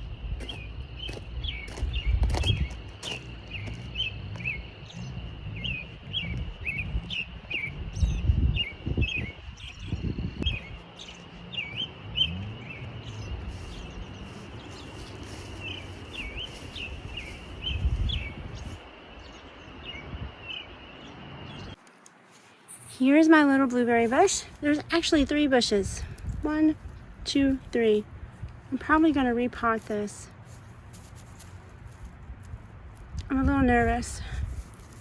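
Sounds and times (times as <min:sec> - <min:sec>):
low rumbles and thuds: 0:00.0 - 0:10.8
small birds chirping: 0:00.0 - 0:23.0, 0:23.8 - 0:35.0.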